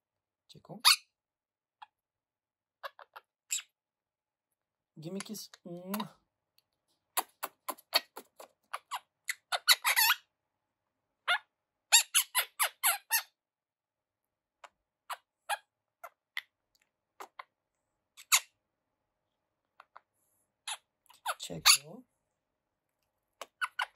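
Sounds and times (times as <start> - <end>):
parakeet chirping: 0.8 - 1.2, 2.8 - 3.8, 7.2 - 10.3, 11.2 - 13.4, 14.6 - 18.6, 19.7 - 22.0, 23.4 - 23.9.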